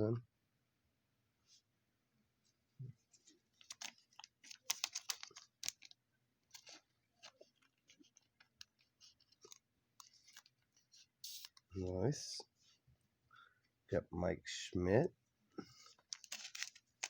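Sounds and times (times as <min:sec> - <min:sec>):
trading cards rustling and clicking: 0:03.2 - 0:11.7, 0:15.8 - 0:17.0.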